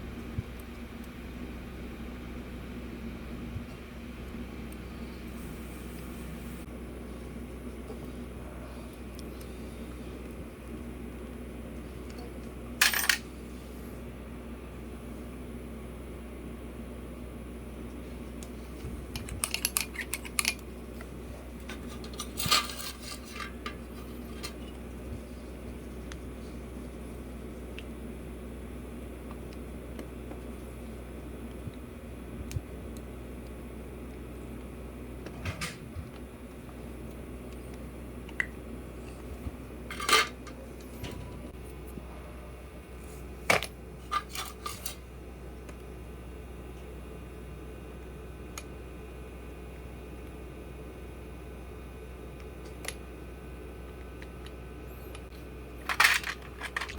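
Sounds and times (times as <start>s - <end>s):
steady low hum: 0.0s - 56.9s
metal parts and tools clinking: 12.8s - 13.2s, 21.7s - 24.6s, 55.8s - 56.9s
metal tools clinking: 12.8s - 13.2s, 21.9s - 23.6s, 39.9s - 40.4s.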